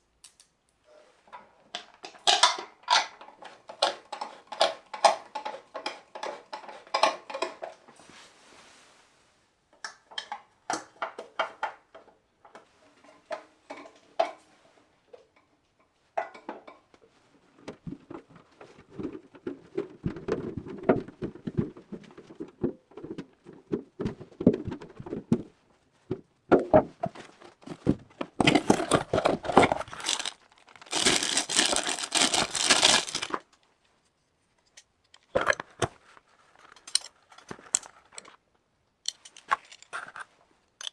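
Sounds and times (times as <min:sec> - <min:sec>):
rubbing and handling: 0:27.1 - 0:33.6, 0:34.6 - 0:38.4, 0:39.1 - 0:40.9.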